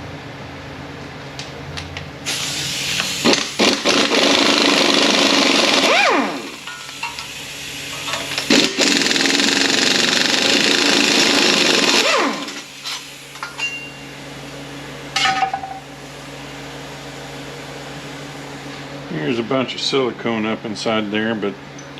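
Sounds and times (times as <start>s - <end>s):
power tool whining: 3.0s - 6.6s, 8.1s - 12.7s.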